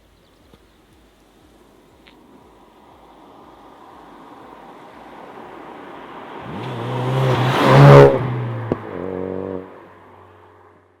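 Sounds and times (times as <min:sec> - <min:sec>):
car engine driving past: 0:02.8 - 0:11.0.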